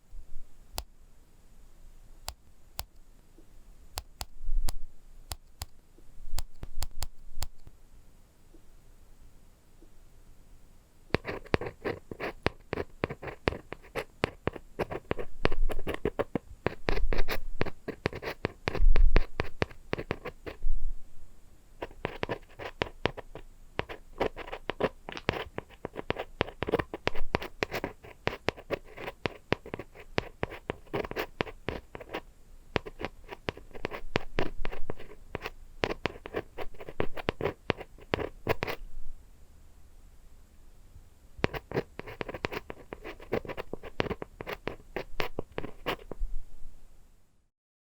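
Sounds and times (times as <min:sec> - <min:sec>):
tapping and scratching: 0:11.2 - 0:20.6, 0:21.8 - 0:32.2, 0:32.8 - 0:38.8, 0:41.4 - 0:46.2.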